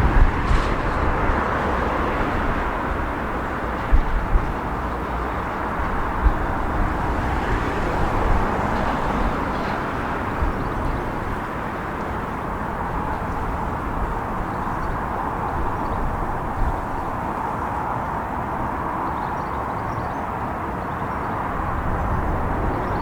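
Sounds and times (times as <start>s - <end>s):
train running: 0.0s - 17.8s.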